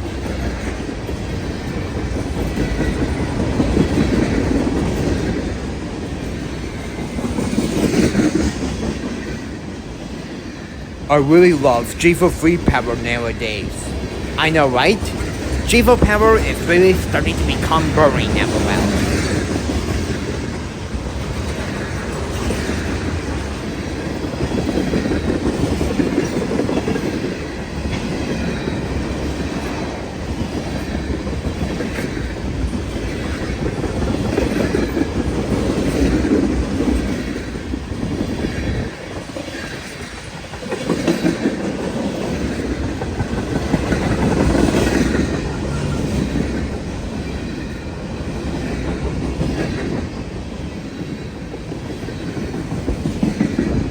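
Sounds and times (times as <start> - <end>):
freight train rumble: 15.0 - 53.9.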